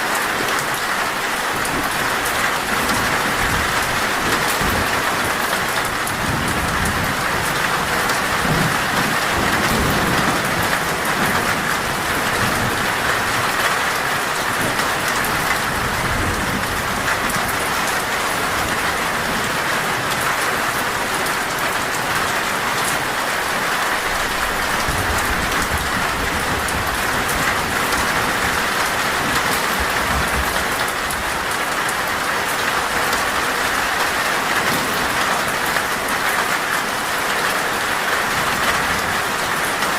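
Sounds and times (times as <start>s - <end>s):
heavy rain on a metal roof: 0.0s - 39.9s
thunder rumbling: 24.0s - 32.2s.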